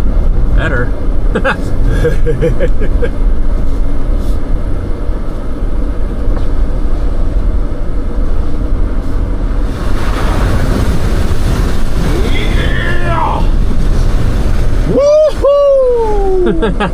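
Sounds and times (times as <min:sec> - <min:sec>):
off-road vehicle engine rumble: 0:00.0 - 0:16.9
loud rushing noise: 0:08.4 - 0:16.9.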